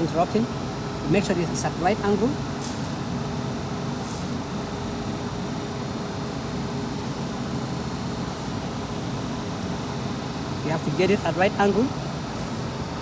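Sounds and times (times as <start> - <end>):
low background hum and rumble: 0.0 - 13.0.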